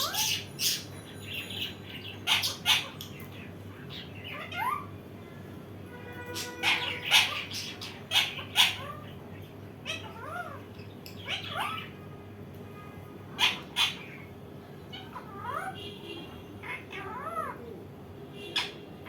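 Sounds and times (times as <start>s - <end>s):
parakeet screechy calls: 0.0s - 4.9s, 6.2s - 12.0s, 13.4s - 14.3s, 14.9s - 15.8s, 16.6s - 17.6s, 18.4s - 18.8s.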